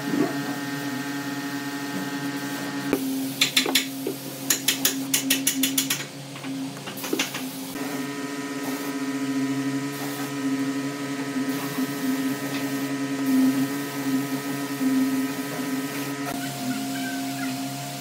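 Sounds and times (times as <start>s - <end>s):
machine hum with fixed tones: 0.0s - 18.0s.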